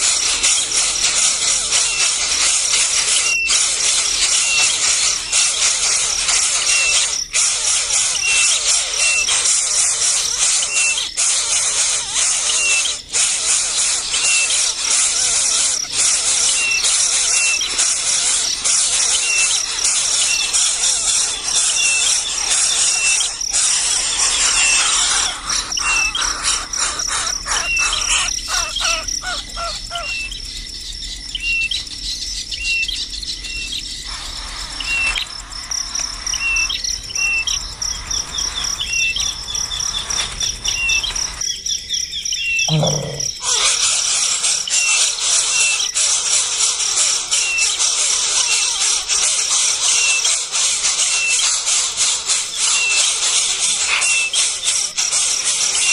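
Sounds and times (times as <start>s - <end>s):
bird call: 0.0s - 30.5s, 31.3s - 41.4s, 42.4s - 54.9s
insects buzzing and trilling: 0.0s - 55.9s
short repeating chirp: 42.6s - 43.4s.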